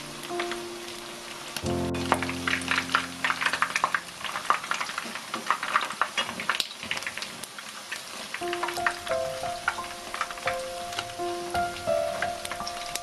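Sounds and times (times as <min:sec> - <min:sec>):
soft background music: 0:00.0 - 0:04.8, 0:08.4 - 0:13.0
food frying in oil: 0:00.0 - 0:13.0.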